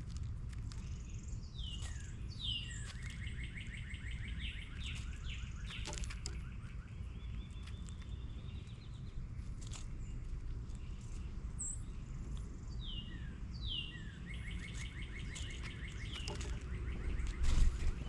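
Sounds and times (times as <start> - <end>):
small songbirds singing: 0.6 - 18.0
steady low rumble: 6.4 - 18.0.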